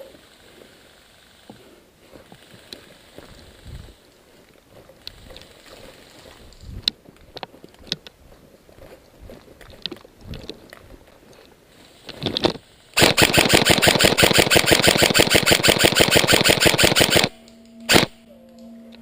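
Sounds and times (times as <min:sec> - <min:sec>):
airsoft gun firing full auto: 0:13.0 - 0:18.2
single airsoft gun shot: 0:13.0 - 0:18.2.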